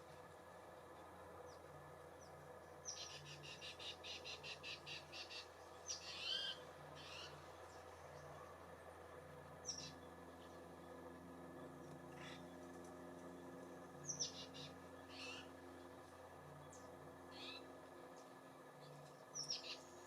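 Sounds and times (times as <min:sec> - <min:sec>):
songbirds chirping: 0:00.0 - 0:20.0.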